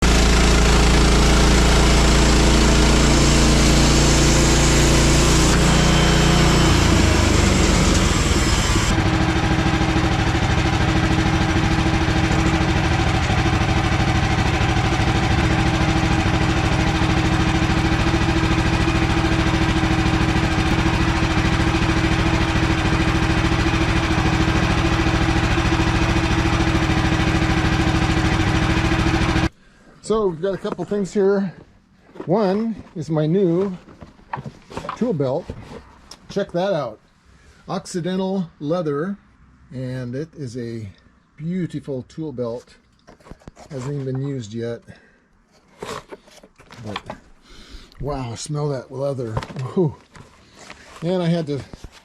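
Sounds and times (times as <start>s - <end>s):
engine running and idling: 0.0s - 29.6s.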